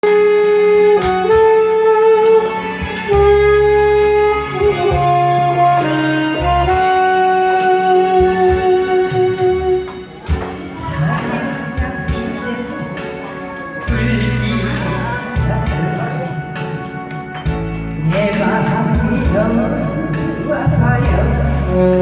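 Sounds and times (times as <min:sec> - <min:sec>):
melodic lead line: 0:00.0 - 0:22.0
bass notes: 0:00.6 - 0:22.0
steady drum beat: 0:08.0 - 0:22.0.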